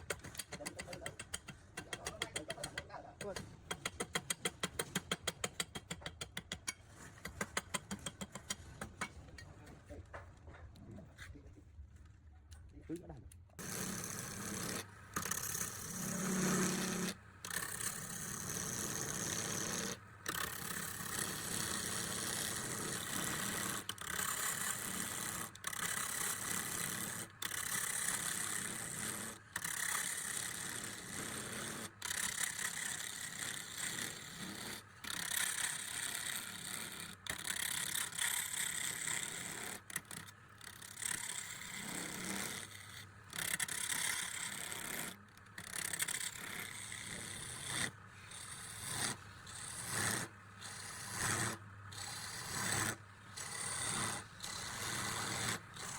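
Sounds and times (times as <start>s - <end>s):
woodworking power tool running: 13.6s - 55.9s.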